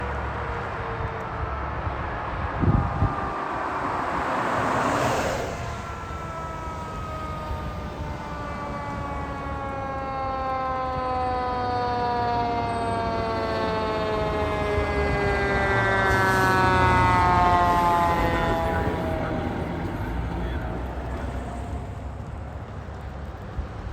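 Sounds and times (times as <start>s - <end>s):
emergency vehicle siren: 0.0s - 23.9s
rush of noise: 2.0s - 7.6s.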